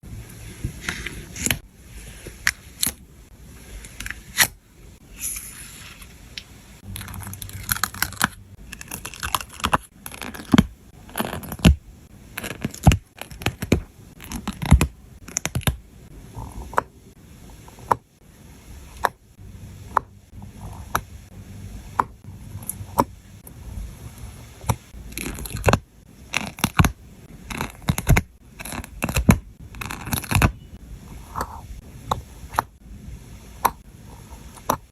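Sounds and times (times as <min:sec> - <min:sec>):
stickers peeling and scraping: 0:06.8 - 0:11.8, 0:12.4 - 0:15.8, 0:24.6 - 0:32.7.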